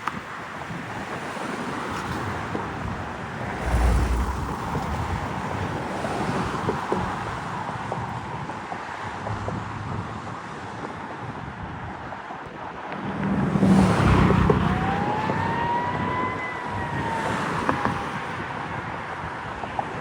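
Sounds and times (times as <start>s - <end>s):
siren wailing: 14.0s - 18.4s
fire truck engine: 14.4s - 18.5s.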